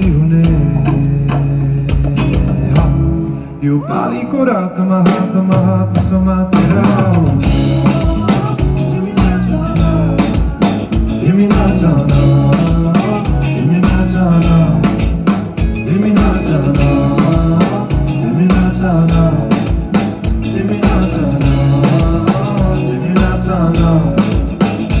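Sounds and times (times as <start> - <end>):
bass guitar: 0.0 - 25.0
electric guitar: 0.0 - 25.0
drum beat: 6.2 - 25.0.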